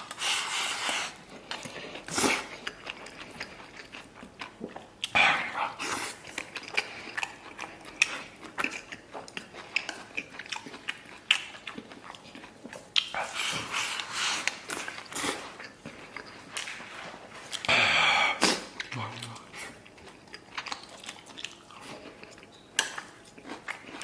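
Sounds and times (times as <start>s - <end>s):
person chewing food: 0.0s - 24.0s.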